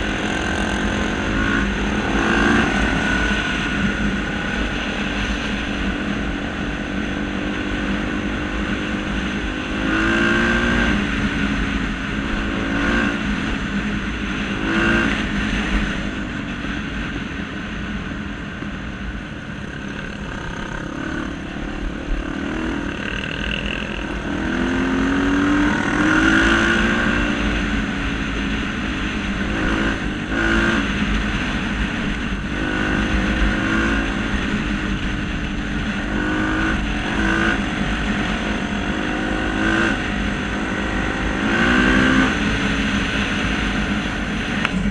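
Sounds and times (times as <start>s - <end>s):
engine revving: 0.0s - 6.4s, 8.1s - 11.4s, 19.6s - 27.5s, 29.2s - 31.5s, 32.3s - 44.9s.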